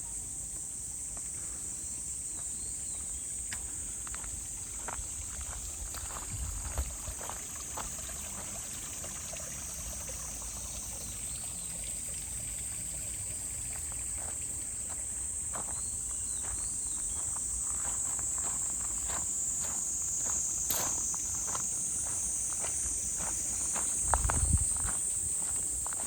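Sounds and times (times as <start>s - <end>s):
insects droning: 0.0s - 26.0s
footsteps on path: 2.4s - 8.0s, 13.8s - 26.0s.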